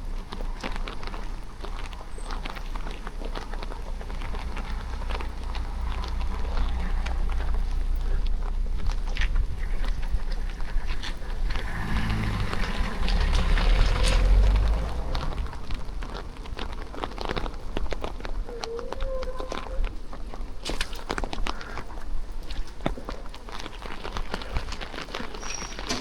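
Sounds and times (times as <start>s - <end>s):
steady rain falling: 0.0s - 26.0s
low rumble: 0.6s - 20.3s.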